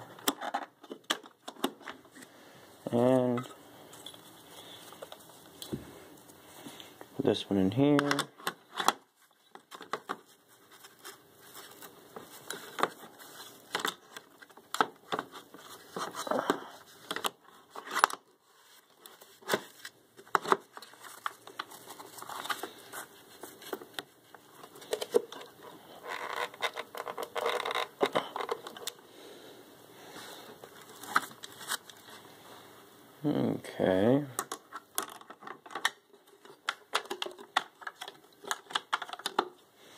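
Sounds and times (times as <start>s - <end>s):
plastic vacuum parts clicking: 0.1s - 2.0s, 7.9s - 10.2s, 23.7s - 29.0s, 34.4s - 39.6s.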